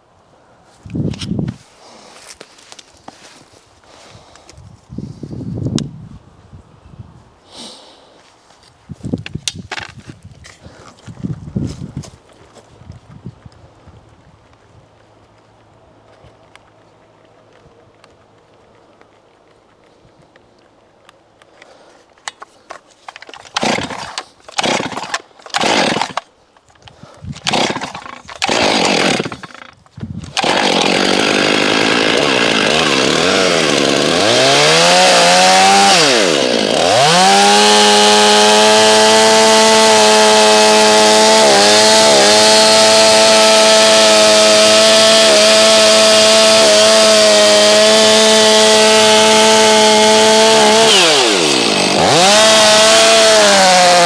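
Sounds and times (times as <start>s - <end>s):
chainsaw starting and revving: 22.3s - 26.3s, 26.9s - 54.0s.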